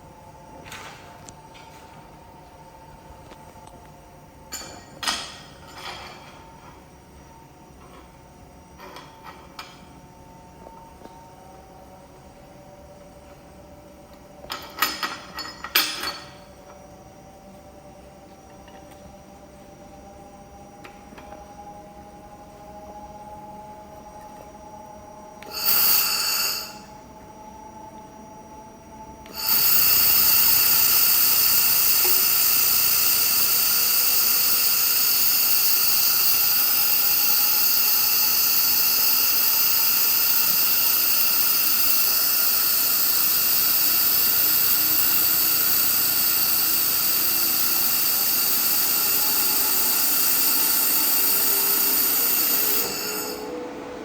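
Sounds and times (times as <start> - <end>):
high whine: 16.3 - 54.0
laser welder hissing: 25.4 - 26.9, 29.3 - 53.5.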